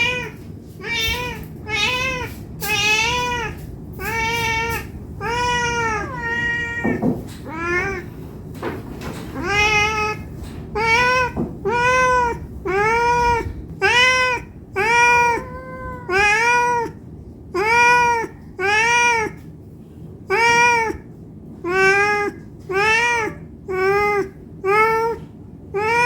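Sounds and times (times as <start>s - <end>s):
cat meowing: 0.0s - 8.2s, 9.0s - 17.0s, 17.6s - 19.5s, 20.3s - 26.0s.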